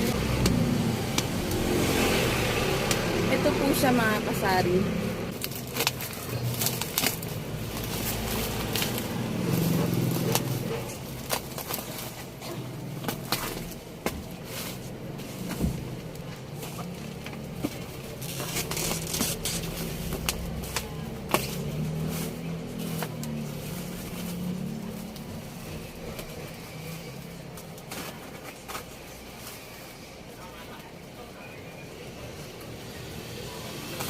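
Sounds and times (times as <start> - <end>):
vehicle engine passing: 0.0 - 5.4, 6.4 - 11.4, 14.5 - 27.5
packaging crinkling: 5.3 - 25.5.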